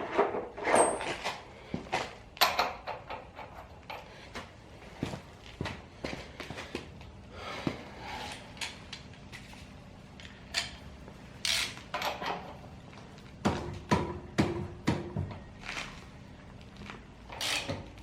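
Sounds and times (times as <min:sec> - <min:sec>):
metal tools clinking and knocking: 0:11.5 - 0:12.6.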